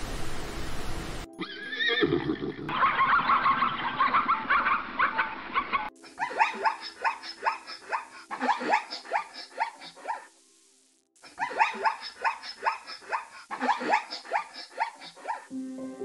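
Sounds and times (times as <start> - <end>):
zebras barking: 6.1 - 10.3, 11.3 - 15.5.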